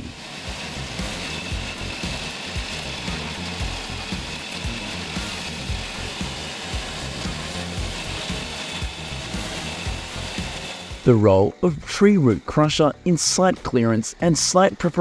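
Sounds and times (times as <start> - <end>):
tree chipper grinding wood: 0.0 - 11.3.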